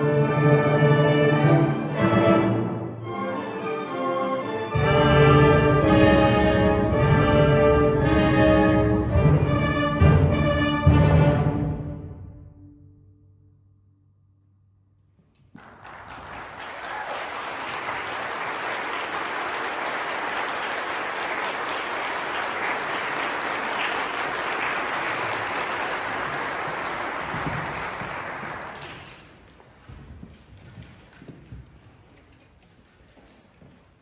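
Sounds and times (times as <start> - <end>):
audience applauding: 15.4 - 29.6.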